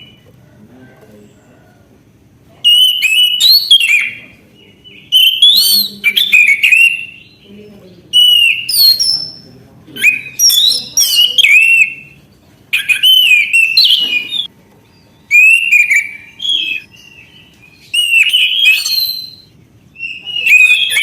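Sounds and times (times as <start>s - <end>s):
thrush singing whistles: 2.6s - 7.5s, 8.1s - 12.2s, 12.8s - 14.5s, 15.3s - 21.0s.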